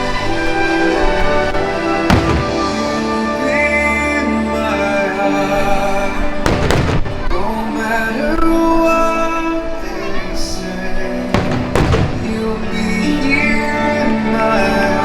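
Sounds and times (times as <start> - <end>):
orchestral music: 0.0 - 15.0
firework bursts and crackle: 1.6 - 3.3, 6.4 - 7.6, 11.4 - 13.0.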